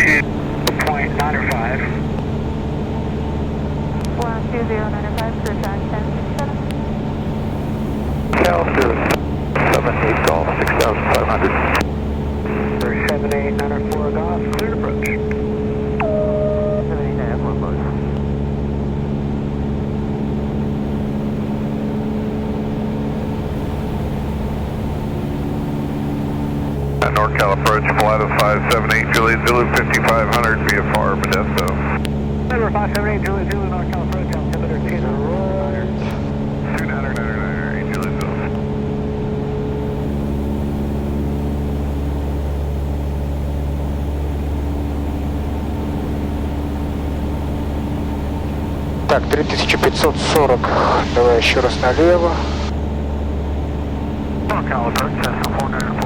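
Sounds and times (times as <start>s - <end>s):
airplane engine droning in cockpit: 0.0s - 56.0s
rushing air noise: 48.9s - 53.0s.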